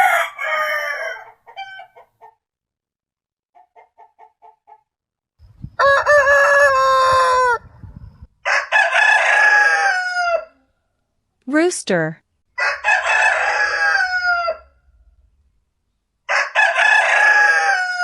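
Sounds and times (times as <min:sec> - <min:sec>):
rooster crowing: 0:00.0 - 0:02.0, 0:05.7 - 0:07.7, 0:08.4 - 0:10.7, 0:12.6 - 0:14.8, 0:16.3 - 0:18.0.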